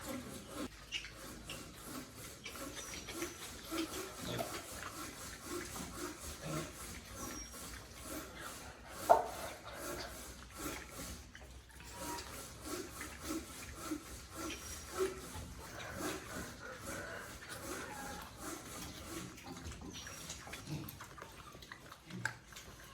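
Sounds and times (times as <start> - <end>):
chickens clucking: 14.4 - 21.6.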